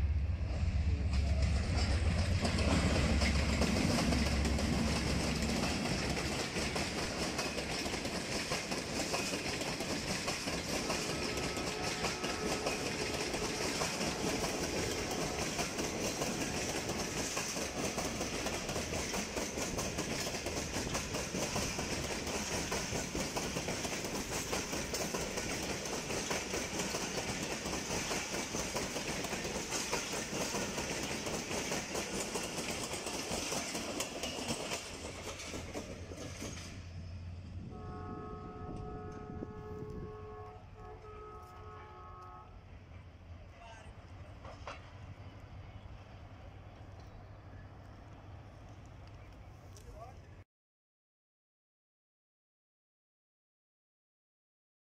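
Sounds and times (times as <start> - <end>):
diesel locomotive engine rumble: 0.0 - 50.4
train wheels clickety-clack: 0.4 - 37.1, 43.6 - 46.1.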